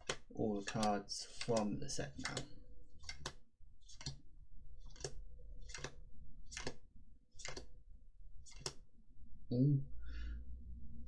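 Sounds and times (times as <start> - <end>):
cards being flicked: 0.0 - 4.2, 4.8 - 6.8, 7.4 - 7.7, 8.5 - 8.8.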